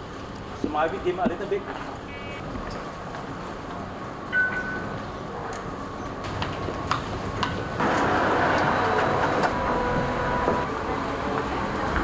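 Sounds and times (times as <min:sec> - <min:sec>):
faint steady tones: 0:00.4 - 0:02.4
vehicle rumble: 0:04.8 - 0:12.0.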